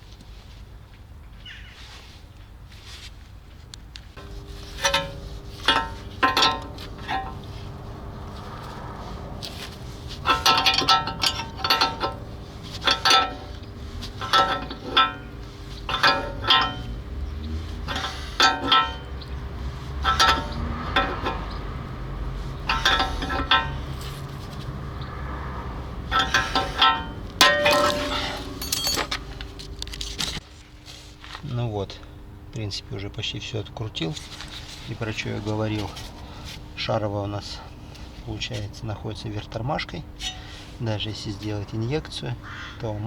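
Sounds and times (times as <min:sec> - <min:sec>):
steel tools clanking on metal: 0:04.2 - 0:29.9, 0:39.2 - 0:42.3
low hum: 0:04.2 - 0:30.4.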